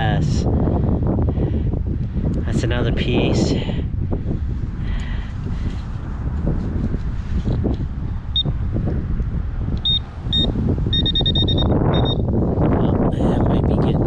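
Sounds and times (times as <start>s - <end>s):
wind rumble on microphone: 0.0s - 14.0s
pinpointer short high beeps: 9.8s - 12.2s.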